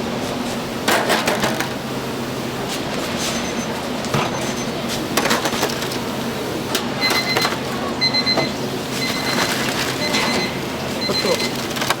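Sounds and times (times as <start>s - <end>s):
electronic beep: 7.0s - 11.6s.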